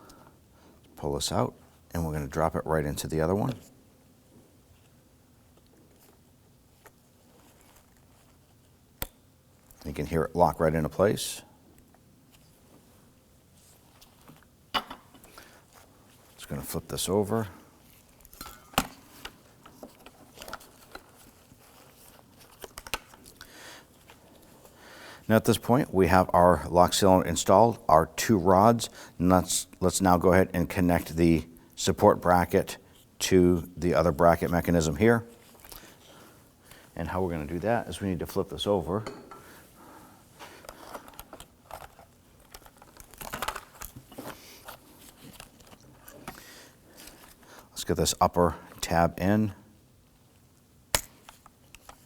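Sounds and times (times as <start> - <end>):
soft rustle: 4.6 - 8.8, 12.3 - 14.6, 19.0 - 25.2.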